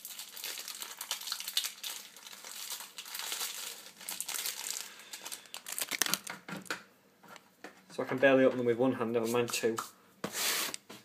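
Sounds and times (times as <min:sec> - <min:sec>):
wrapper crinkling and tearing: 0:00.0 - 0:06.5.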